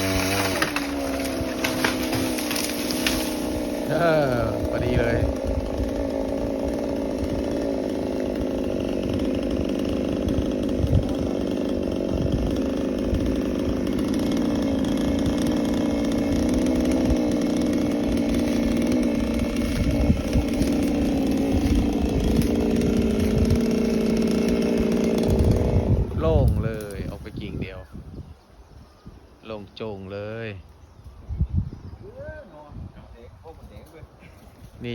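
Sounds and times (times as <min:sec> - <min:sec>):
chainsaw cutting branch: 0:00.0 - 0:27.7.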